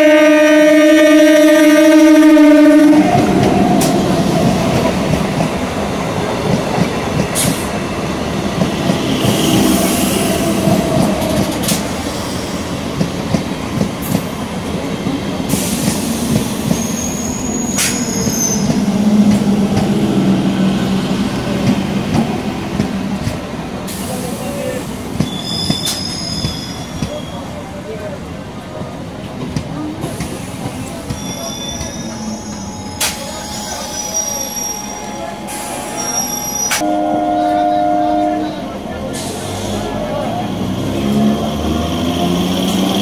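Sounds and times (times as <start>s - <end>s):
train wheels rumbling on rail: 0.0s - 43.0s
wheel squeal: 16.6s - 18.8s, 25.2s - 27.6s, 30.9s - 36.8s.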